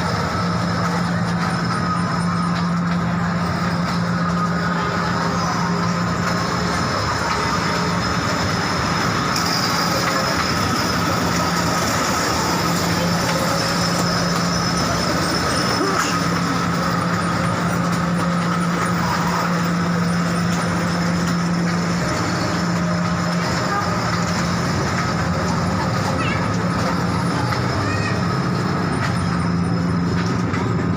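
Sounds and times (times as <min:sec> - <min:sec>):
train rolling rumble: 0:00.0 - 0:30.9.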